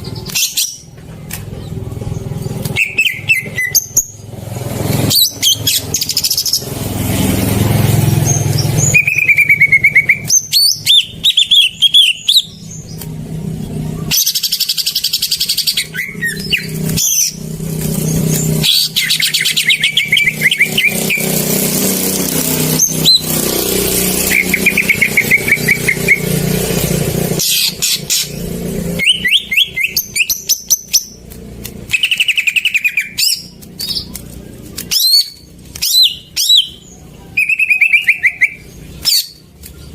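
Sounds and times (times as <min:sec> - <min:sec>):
bird singing chirps and trills: 0:00.0 - 0:39.9
vehicle engine rumbling: 0:00.0 - 0:39.9.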